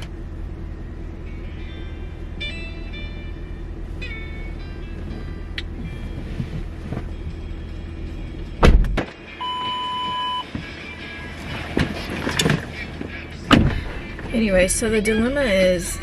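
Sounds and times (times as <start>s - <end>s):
car engine humming: 0.0s - 16.0s
loud thump: 8.6s - 9.2s, 13.5s - 13.9s
electronic beep: 9.4s - 10.5s.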